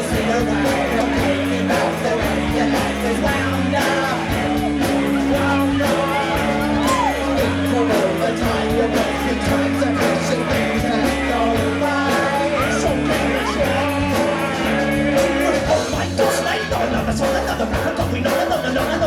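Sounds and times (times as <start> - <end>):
drum hits: 0.0 - 19.0
held bass notes: 0.0 - 19.0
live rock band playing: 0.0 - 19.0.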